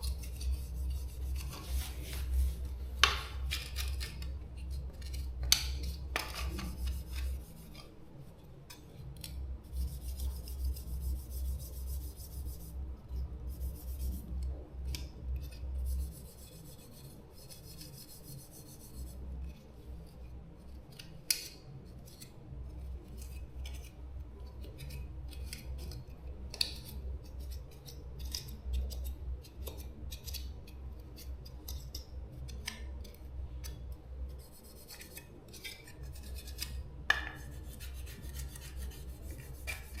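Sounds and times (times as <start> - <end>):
hand tool scraping and rubbing: 0.0 - 4.2, 34.4 - 40.0.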